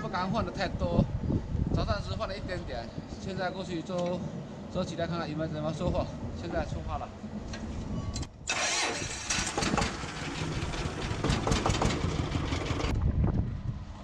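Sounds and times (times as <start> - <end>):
engine starting and running roughly: 8.5 - 12.9.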